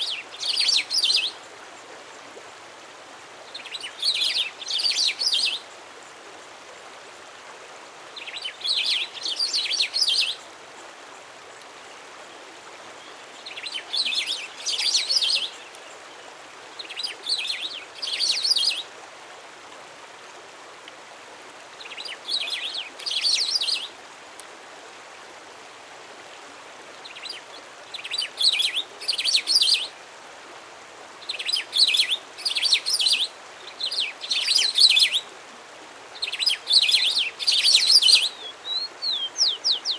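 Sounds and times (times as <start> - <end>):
faint hiss: 0.0 - 39.9
songbird singing rapid notes: 31.2 - 35.3, 36.2 - 39.9.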